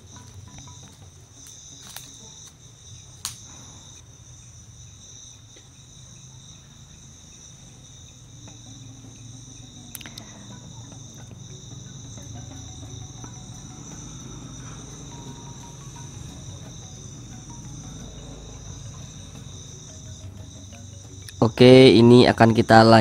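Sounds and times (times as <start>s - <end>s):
crickets trilling: 0.0s - 23.0s
sharp clicks: 9.9s - 10.3s.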